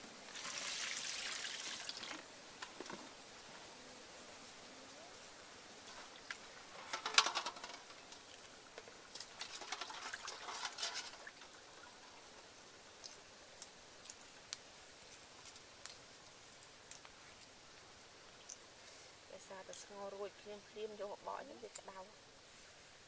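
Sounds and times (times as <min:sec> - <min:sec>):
water splashing and dripping: 0:00.2 - 0:02.3, 0:07.1 - 0:17.5
water sloshing in bowl: 0:09.2 - 0:11.6.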